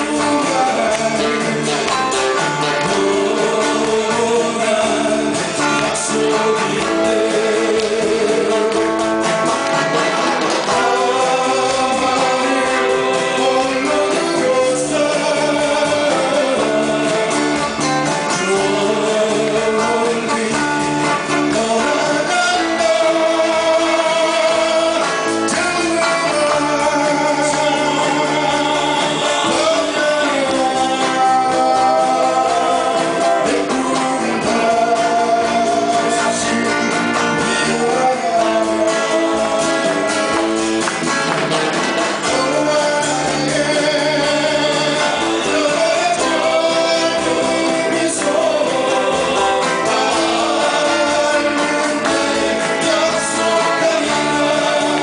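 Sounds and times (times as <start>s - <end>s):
guitar accompaniment: 0.0s - 55.0s
person singing long notes: 10.6s - 40.5s.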